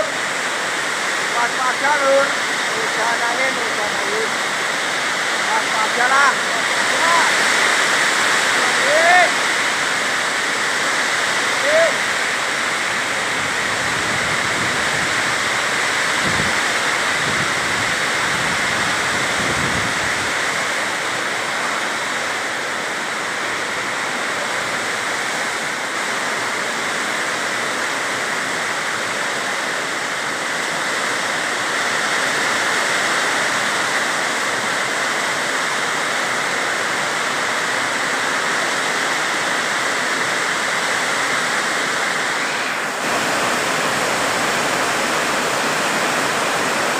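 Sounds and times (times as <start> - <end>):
heavy rain hissing: 0.0 - 46.9
wind gusts on microphone: 12.8 - 21.6.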